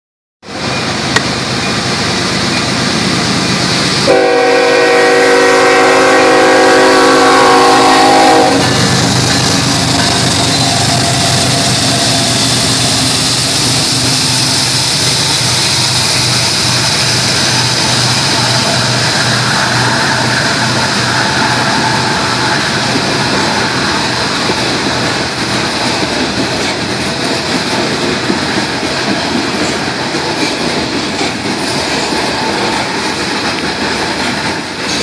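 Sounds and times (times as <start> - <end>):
diesel locomotive passing: 0.4 - 35.0
freight cars rumbling on rails: 0.4 - 35.0
train air horn chord: 4.0 - 8.9.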